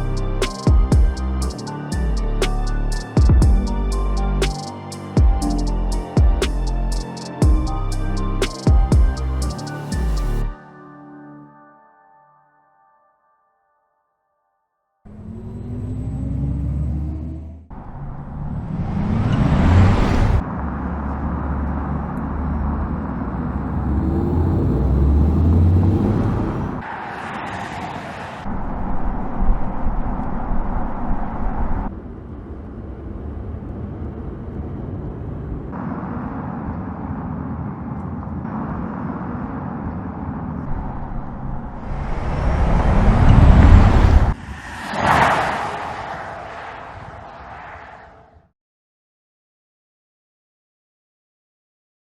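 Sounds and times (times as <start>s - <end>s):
electric car passing: 15.1s - 48.4s.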